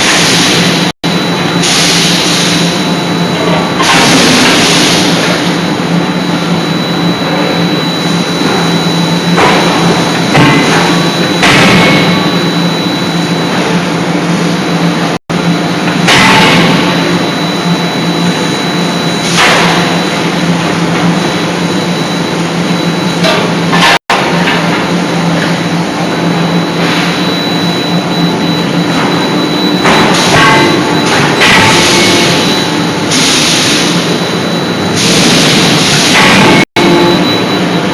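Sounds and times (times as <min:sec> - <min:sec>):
forging hammer machine hum: 0:00.0 - 0:37.9.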